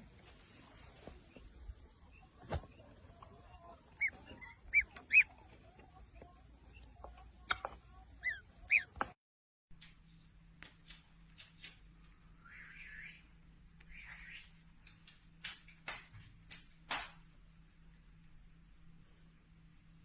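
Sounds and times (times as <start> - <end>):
bird squawking: 3.6 - 5.5, 7.5 - 9.1.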